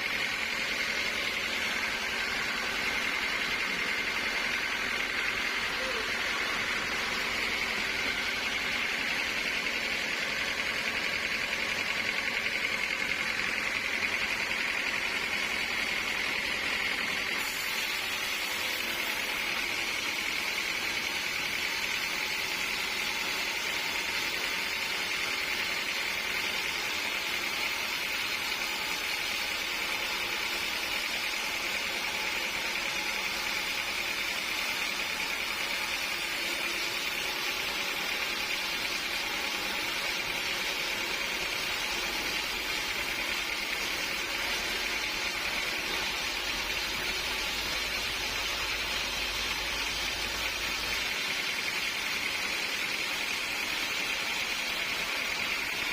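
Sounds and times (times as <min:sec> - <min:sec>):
sawmill machinery whining: 0:00.0 - 0:55.9.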